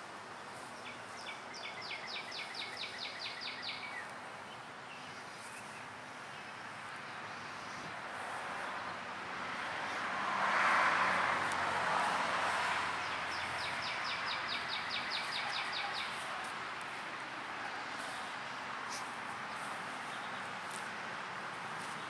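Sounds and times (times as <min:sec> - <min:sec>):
small bird chirping rapidly: 0:13.0 - 0:16.2.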